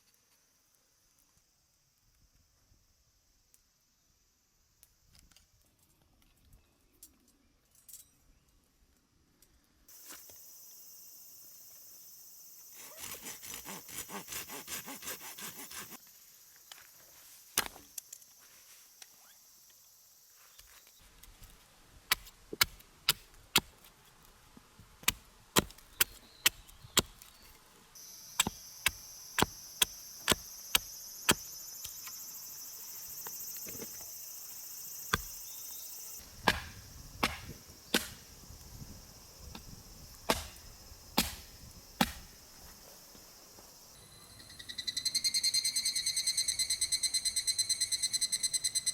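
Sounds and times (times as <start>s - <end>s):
insects buzzing: 9.9s - 21.0s, 25.9s - 48.9s
chopping on wood: 28.4s - 31.4s, 36.4s - 38.2s, 40.3s - 40.6s, 41.2s - 42.3s.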